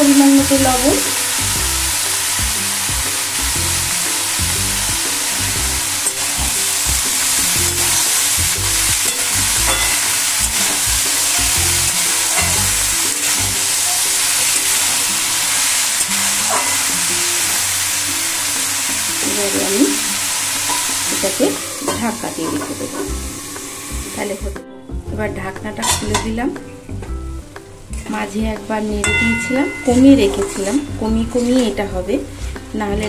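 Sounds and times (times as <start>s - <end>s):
vegetables sizzling in hot oil: 0.0s - 24.4s, 27.8s - 33.0s
metal spatula scraping pan: 9.0s - 17.1s, 20.6s - 23.7s, 29.1s - 32.6s.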